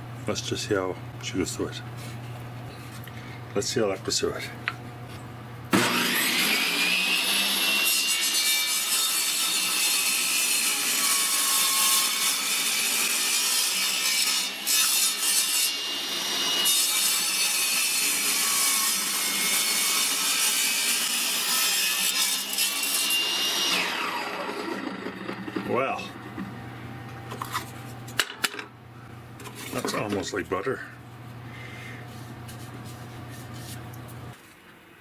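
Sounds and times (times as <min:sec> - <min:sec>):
saw winding down: 0:05.7 - 0:07.8, 0:23.5 - 0:25.7
table saw cutting wood: 0:05.7 - 0:26.1.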